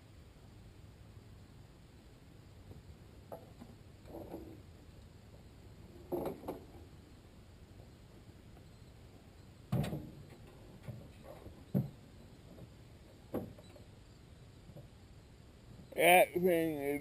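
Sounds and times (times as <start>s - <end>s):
crane clunks and knocks: 9.7s - 13.8s.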